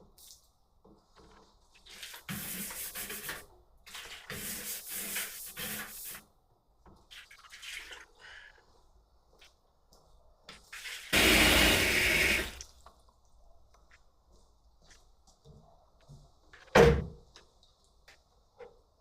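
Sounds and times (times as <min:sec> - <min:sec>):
liquid pouring and splashing: 0:07.0 - 0:08.8.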